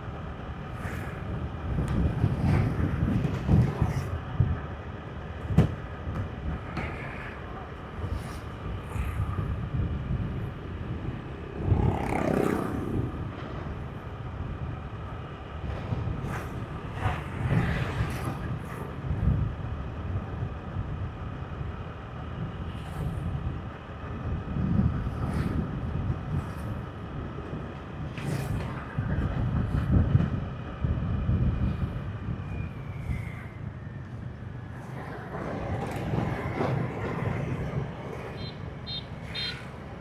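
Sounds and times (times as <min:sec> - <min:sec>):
vehicles passing: 0:00.0 - 0:30.9, 0:33.0 - 0:40.0
motorbike road rumble: 0:00.0 - 0:40.0.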